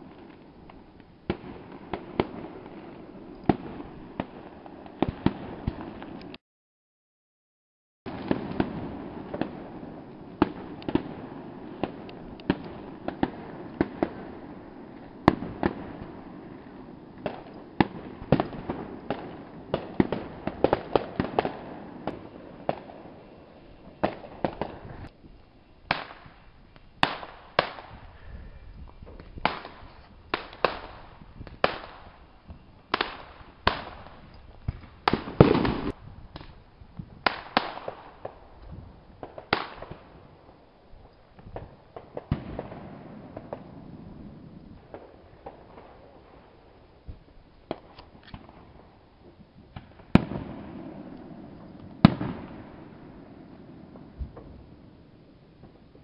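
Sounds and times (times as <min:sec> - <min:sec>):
fireworks bursting: 0:00.0 - 0:06.4, 0:08.1 - 0:56.0.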